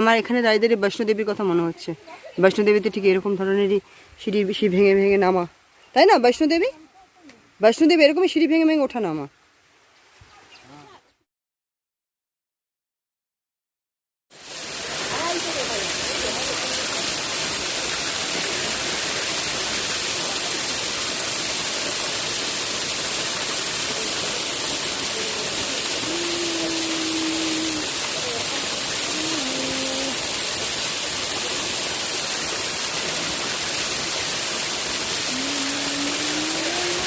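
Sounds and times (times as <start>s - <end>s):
waterfall roaring: 14.4s - 37.0s.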